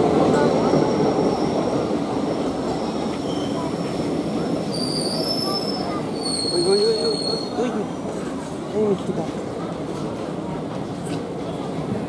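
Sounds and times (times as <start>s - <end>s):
train wheels rumbling on track: 0.0s - 12.0s
brake squeals: 4.7s - 7.6s.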